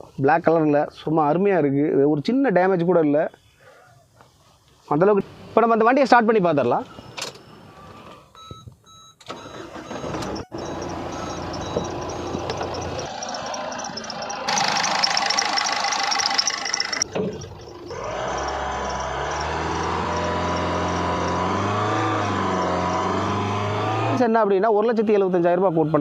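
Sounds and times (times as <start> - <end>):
car engine starting and idling: 9.2 - 24.2.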